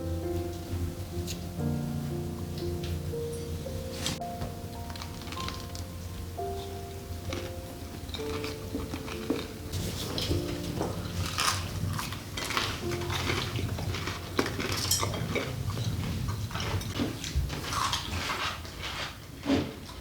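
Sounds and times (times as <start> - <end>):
cutlery and dishes clinking: 4.8 - 20.0.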